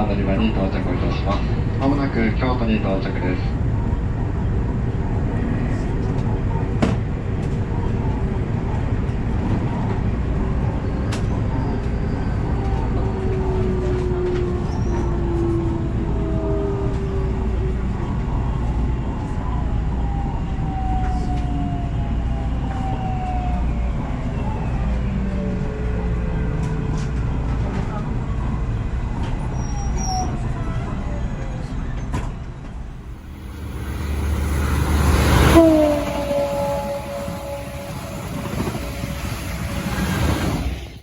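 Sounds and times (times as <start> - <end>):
train wheels rumbling on rail: 0.0 - 41.0
train whining tones: 32.6 - 41.0.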